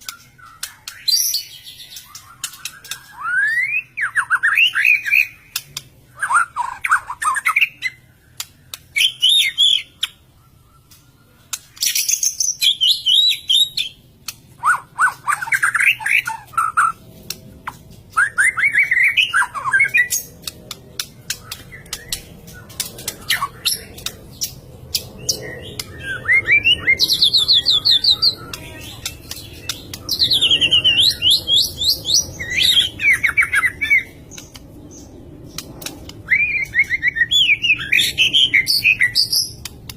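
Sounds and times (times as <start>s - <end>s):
bird singing whistles: 0.0s - 5.4s, 11.8s - 14.0s, 18.2s - 20.3s, 25.4s - 28.7s, 36.2s - 39.6s.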